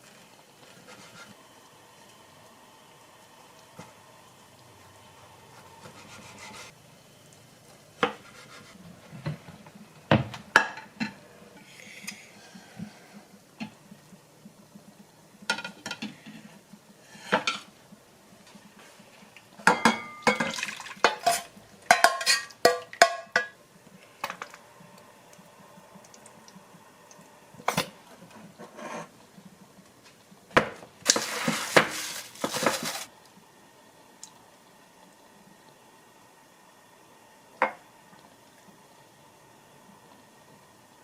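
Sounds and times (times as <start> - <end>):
dishes and cutlery clinking: 19.6 - 23.6.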